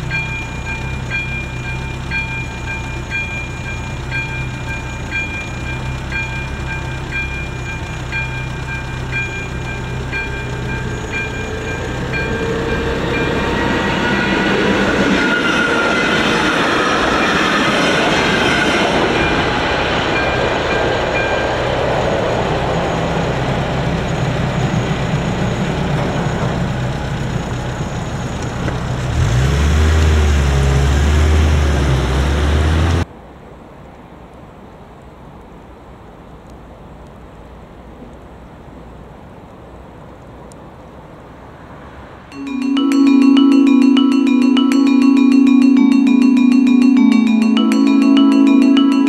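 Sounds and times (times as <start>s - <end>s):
level crossing bell ringing: 0.0s - 23.4s, 42.3s - 49.0s
electric train passing: 0.0s - 33.1s, 40.4s - 49.0s.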